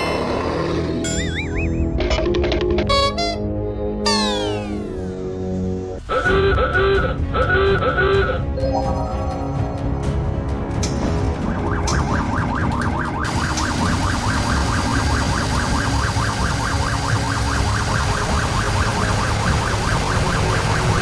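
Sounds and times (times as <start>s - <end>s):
fire truck siren warbling: 12.4s - 21.0s
steady loud hiss: 13.3s - 21.0s.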